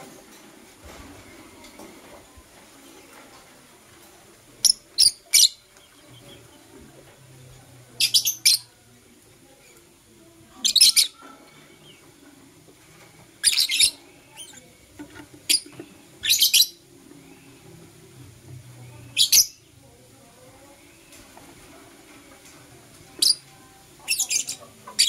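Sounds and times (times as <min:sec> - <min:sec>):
lovebirds chirping: 0:04.6 - 0:06.7, 0:08.0 - 0:08.7, 0:13.4 - 0:14.7, 0:23.2 - 0:25.0.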